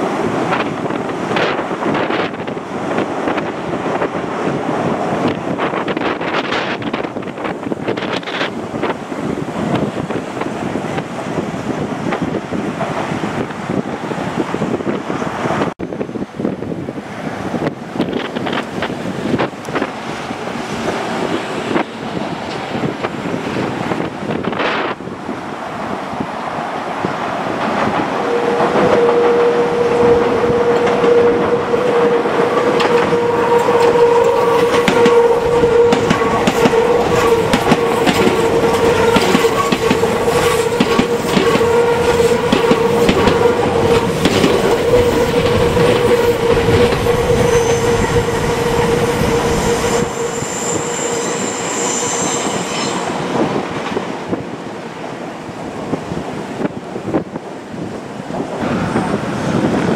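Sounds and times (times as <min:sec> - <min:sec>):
steady train tone: 0:00.0 - 0:59.9
high-pitched train squeal: 0:27.9 - 0:54.1
train wheels clattering over joints: 0:32.5 - 0:49.4.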